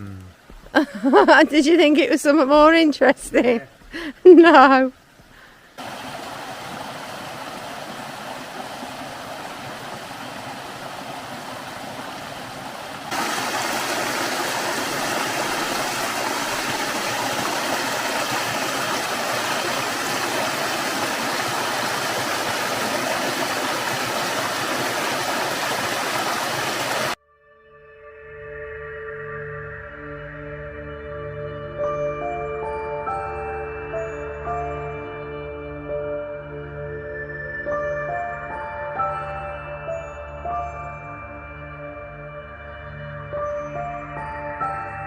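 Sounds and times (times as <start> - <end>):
water rushing: 0.0 - 27.2.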